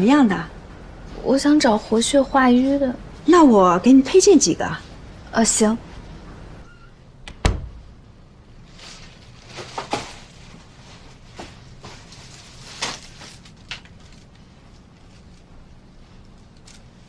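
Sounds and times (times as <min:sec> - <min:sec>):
low background hum: 0:00.0 - 0:17.0
soft rustling: 0:08.6 - 0:17.0.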